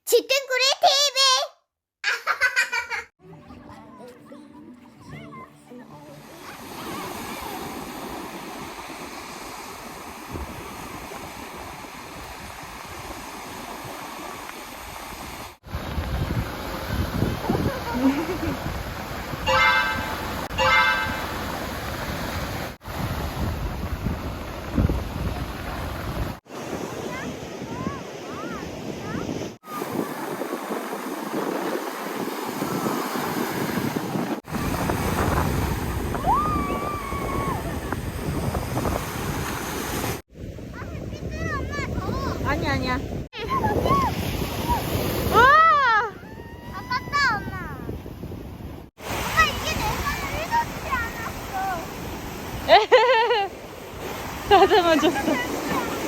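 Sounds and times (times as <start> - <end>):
wind rushing on microphone: 6.4 - 52.8
short high-pitched tone: 19.5 - 21.4.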